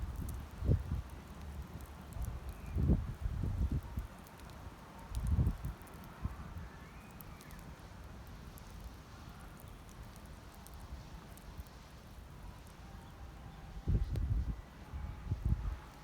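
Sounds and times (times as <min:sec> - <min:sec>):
campfire crackles and pops: 0:00.0 - 0:12.8
low steady fire rumble: 0:00.0 - 0:16.0.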